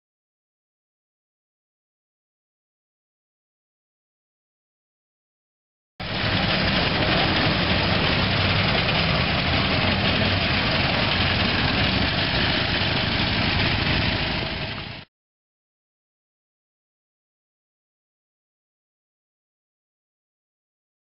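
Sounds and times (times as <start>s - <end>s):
vehicle engine running: 6.0s - 15.1s.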